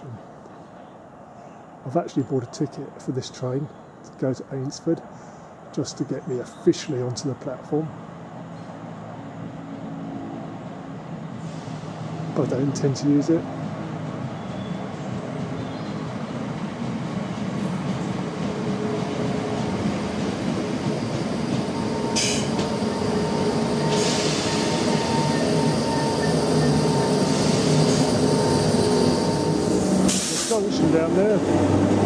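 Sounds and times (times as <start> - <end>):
train running rumble: 6.9 - 32.0
train whine: 7.2 - 32.0
brake hissing: 22.1 - 22.8, 27.1 - 30.7.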